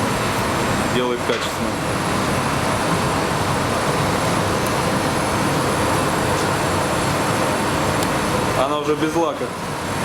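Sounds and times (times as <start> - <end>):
ventilation fans rushing air: 0.0 - 10.0.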